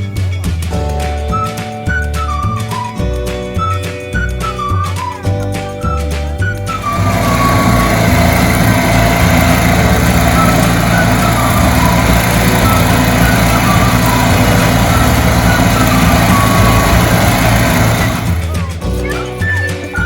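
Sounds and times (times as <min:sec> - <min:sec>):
music: 0:00.0 - 0:20.0
motor engine running: 0:06.4 - 0:20.0.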